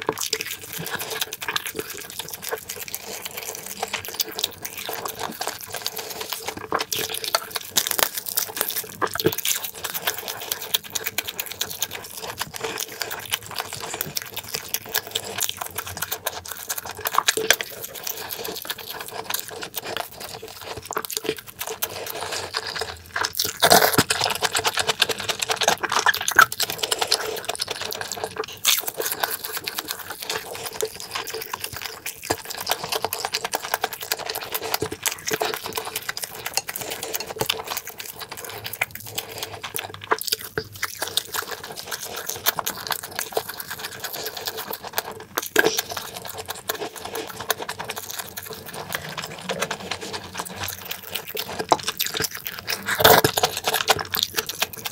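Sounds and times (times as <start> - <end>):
chewing and mouth smacking: 0.0 - 54.9.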